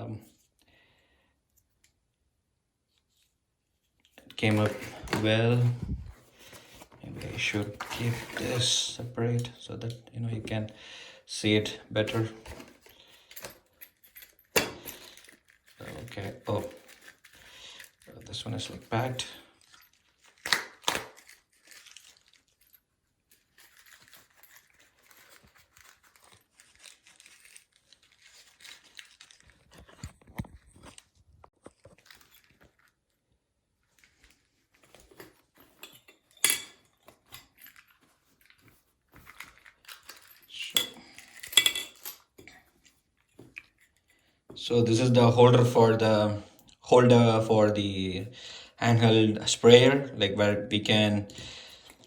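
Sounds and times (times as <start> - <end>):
plastic packaging crinkling and tearing: 15.0 - 33.2.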